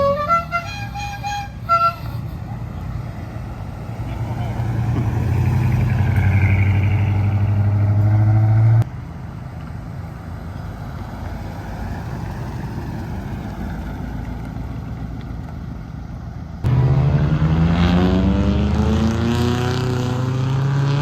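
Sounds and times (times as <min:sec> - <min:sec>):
car engine at high revs: 0:02.7 - 0:09.0, 0:16.6 - 0:21.0.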